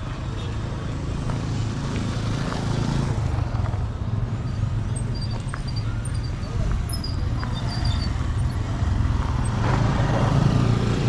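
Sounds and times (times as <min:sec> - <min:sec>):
road noise: 0:00.0 - 0:11.0
vehicle engine humming: 0:00.0 - 0:11.0.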